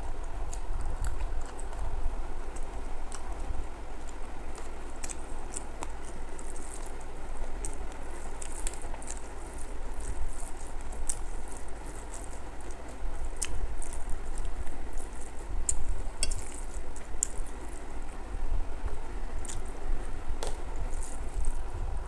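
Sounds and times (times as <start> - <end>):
wet chewing: 2.5 - 18.0, 19.4 - 19.8.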